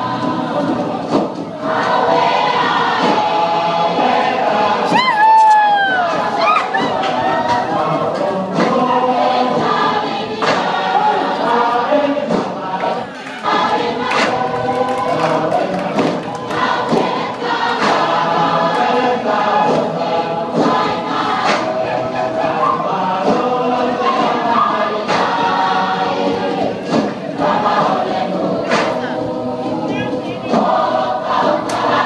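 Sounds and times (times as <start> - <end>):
group singing in harmony: 0.0 - 32.0
sharp clap on the beat: 13.2 - 18.0.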